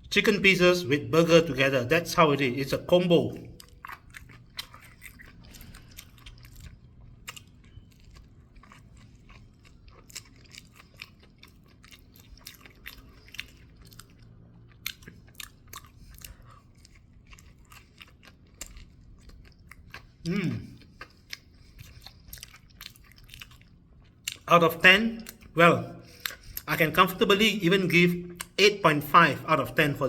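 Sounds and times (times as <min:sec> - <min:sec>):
person chewing crunchy food: 0:03.3 - 0:24.5, 0:25.2 - 0:26.7.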